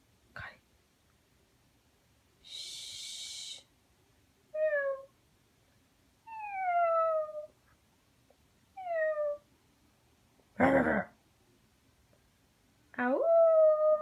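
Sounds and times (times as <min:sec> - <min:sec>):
puppy whining: 0:06.3 - 0:07.5.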